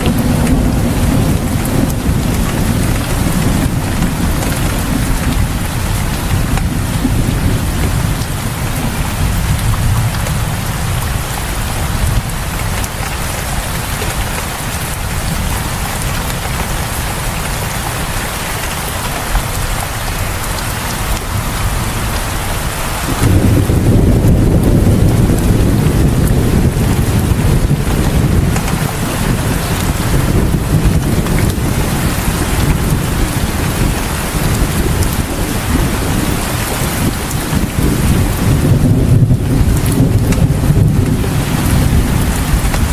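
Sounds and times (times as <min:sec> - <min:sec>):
steady rain hissing: 0:00.0 - 0:42.9
low rumble: 0:21.2 - 0:31.8.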